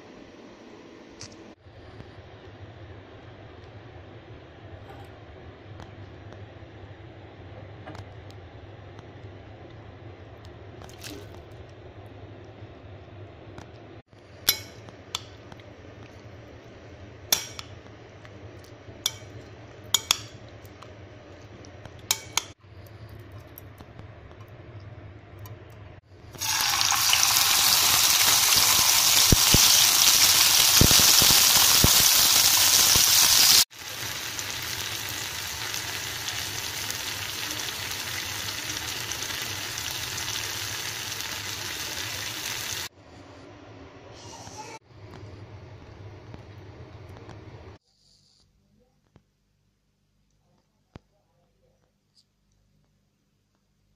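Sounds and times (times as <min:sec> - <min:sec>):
food sizzling in hot oil: 0:26.4 - 0:42.9.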